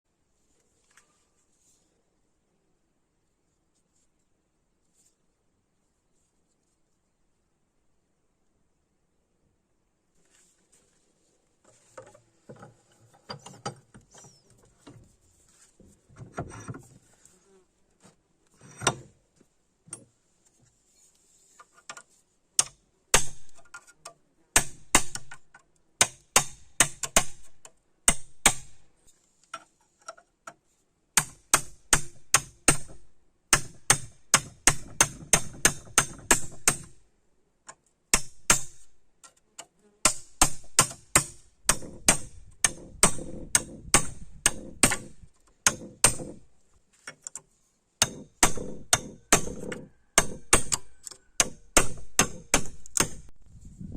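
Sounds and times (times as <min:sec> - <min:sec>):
hammer striking steel: 0:48.0 - 0:53.3.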